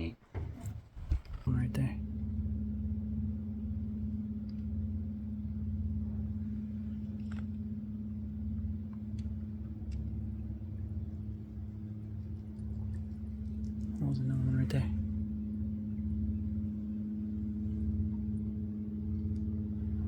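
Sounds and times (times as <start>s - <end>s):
boat motor humming: 0.0s - 20.0s
faint clicks: 8.9s - 10.1s, 12.2s - 14.2s, 19.1s - 19.6s.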